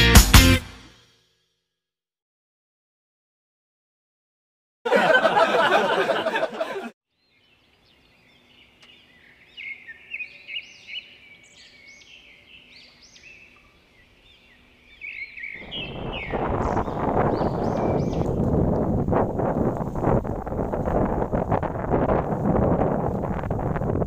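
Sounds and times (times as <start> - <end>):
small birds chirping: 7.1 - 18.9
wind rushing over microphone: 15.3 - 24.0.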